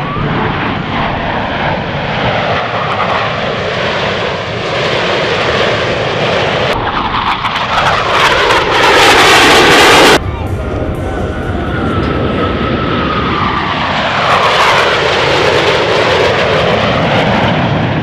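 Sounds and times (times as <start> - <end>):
airplane flying past: 0.0 - 18.0.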